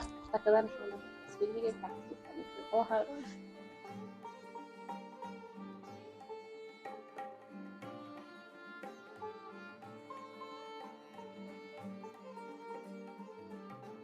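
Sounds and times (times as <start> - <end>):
light percussion pulse: 0.0 - 6.4
plucked sitar-like string instrument: 0.0 - 14.0.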